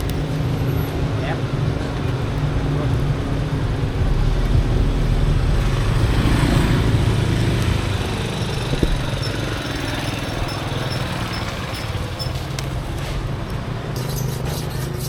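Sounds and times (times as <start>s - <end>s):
small engine running: 4.5s - 13.2s.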